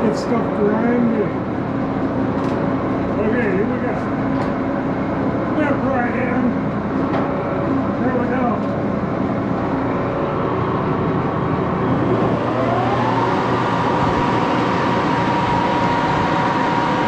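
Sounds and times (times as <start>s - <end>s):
rising mechanical whine: 8.9s - 17.0s
lathe running: 9.4s - 17.0s.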